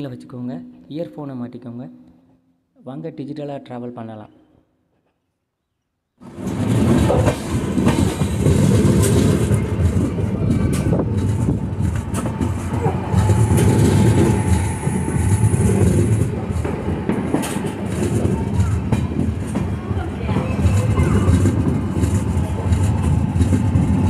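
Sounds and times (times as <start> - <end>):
train coaches rumbling: 6.2 - 24.0
wheels clicking over track: 6.2 - 24.0.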